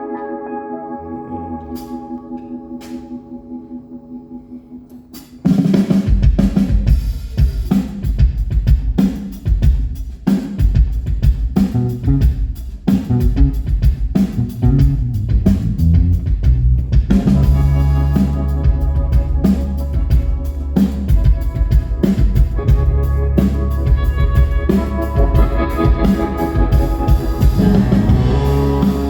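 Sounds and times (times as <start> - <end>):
live rock band playing: 0.0 - 3.6, 5.2 - 29.0
held chord: 0.0 - 5.1.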